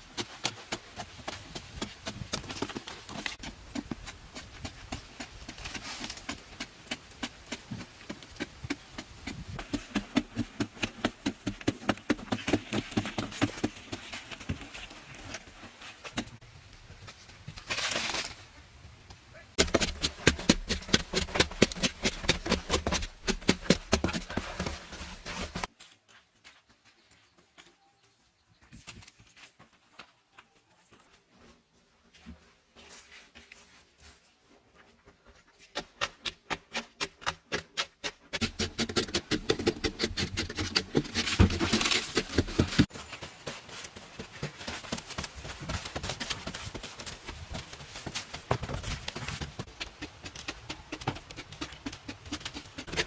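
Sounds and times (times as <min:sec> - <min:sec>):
hand tool knocking and scraping: 0:19.6 - 0:25.7, 0:35.7 - 0:43.0, 0:44.3 - 0:53.0.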